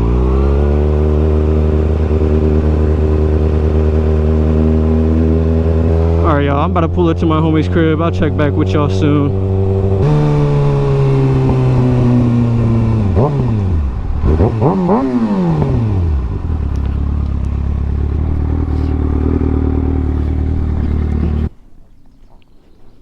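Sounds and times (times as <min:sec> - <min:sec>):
motorcycle engine revving and idling: 0:00.0 - 0:21.5.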